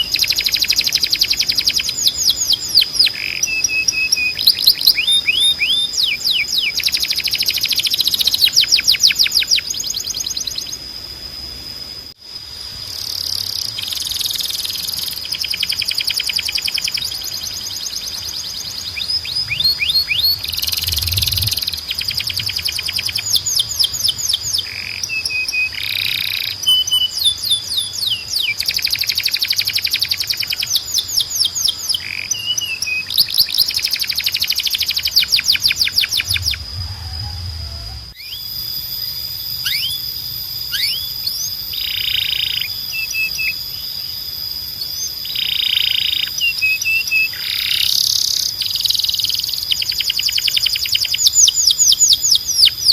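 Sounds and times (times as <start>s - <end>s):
canary singing: 0.0s - 10.8s, 13.1s - 52.9s
steady high tone: 35.3s - 38.7s.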